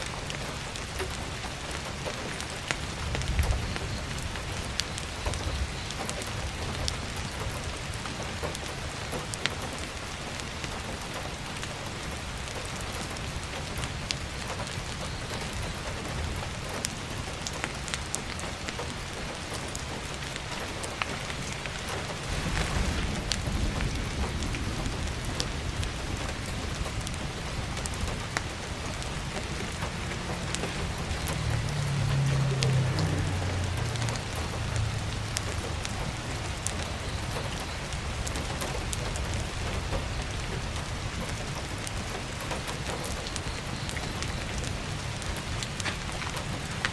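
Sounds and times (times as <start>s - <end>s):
firewood crackling: 0.0s - 46.9s
heavy rain on skylight: 0.0s - 46.9s
low rumble: 22.2s - 37.4s.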